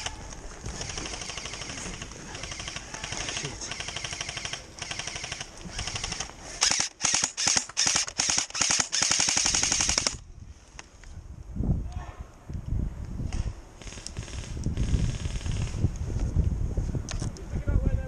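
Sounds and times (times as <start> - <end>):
airsoft gun firing bursts: 0.8 - 10.2.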